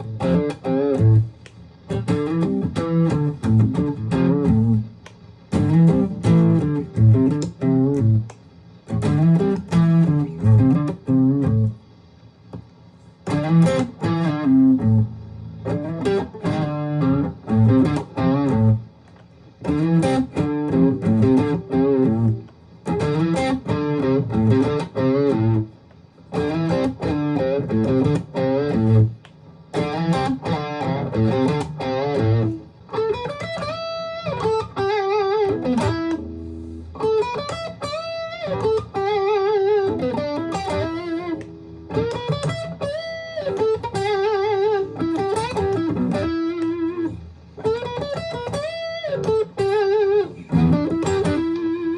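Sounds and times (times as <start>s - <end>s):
electric guitar notes and chords: 0.0s - 11.8s, 13.2s - 51.9s.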